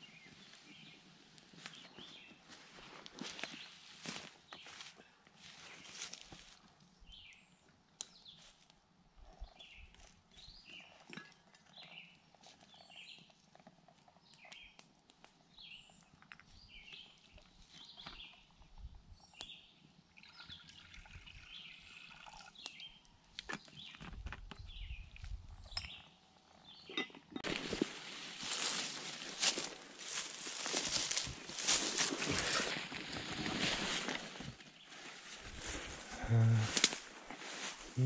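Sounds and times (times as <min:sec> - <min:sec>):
faint high birdsong chirps: 0:01.6 - 0:08.6, 0:09.3 - 0:13.4, 0:14.0 - 0:27.8, 0:28.4 - 0:33.5.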